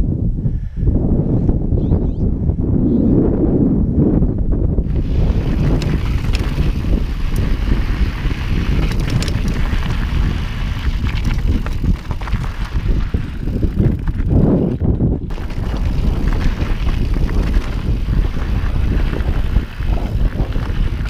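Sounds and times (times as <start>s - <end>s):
wind rumble on microphone: 0.0s - 21.0s
stones and bike rattling: 4.8s - 21.0s
tyres crunching over trail: 4.9s - 21.0s.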